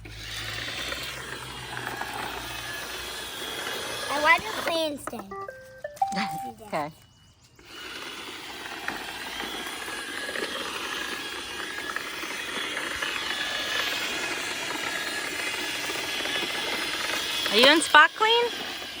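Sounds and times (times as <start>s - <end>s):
robot vacuum whirring: 0.0s - 19.0s.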